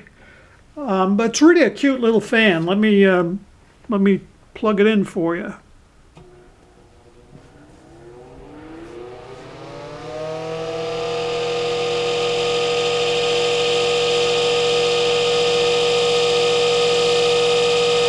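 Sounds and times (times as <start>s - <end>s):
table fan motor hum and whir: 6.1s - 18.0s.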